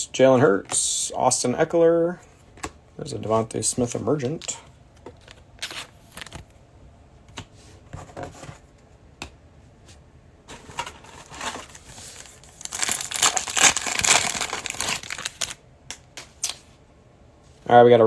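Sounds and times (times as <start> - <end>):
foil wrapper crinkling: 11.1 - 15.6.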